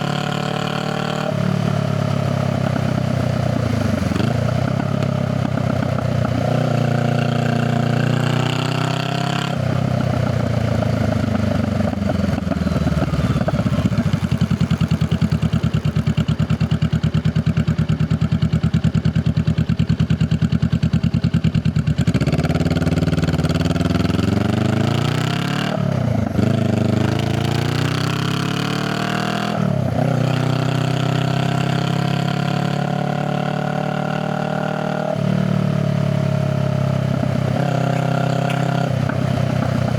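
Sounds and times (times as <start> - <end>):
motorcycle engine revving and idling: 0.0 - 39.9.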